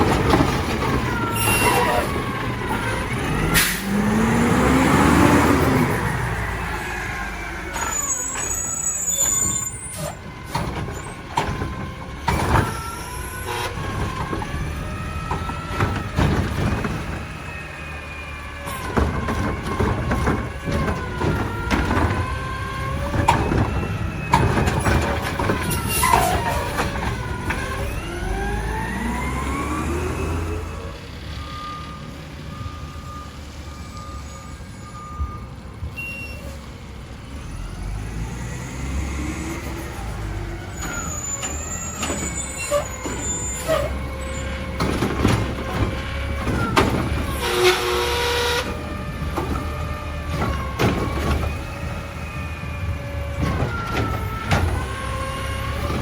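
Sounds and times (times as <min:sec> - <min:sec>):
diesel engine revving: 0:00.0 - 0:56.0
short beeps: 0:36.0 - 0:36.4.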